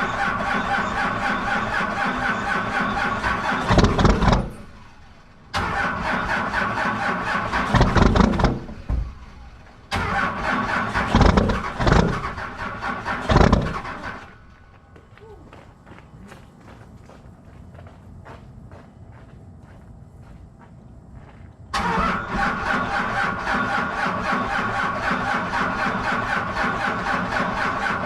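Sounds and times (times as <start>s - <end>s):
starter motor whine: 0.0s - 14.7s, 21.7s - 28.0s
diesel engine cranking: 0.0s - 14.9s, 21.7s - 28.0s.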